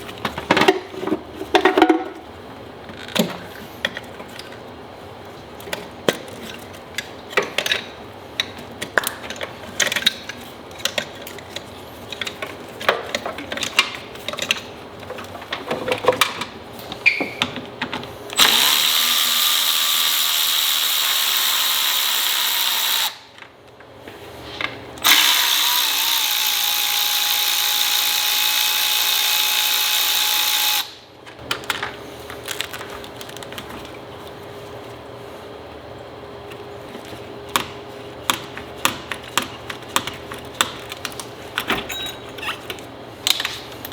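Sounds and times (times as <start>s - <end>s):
power tool whining: 18.4s - 23.2s, 25.0s - 31.0s.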